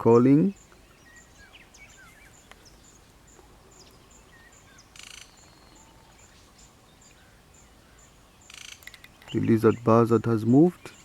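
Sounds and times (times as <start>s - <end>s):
insect ticking: 8.5s - 9.4s.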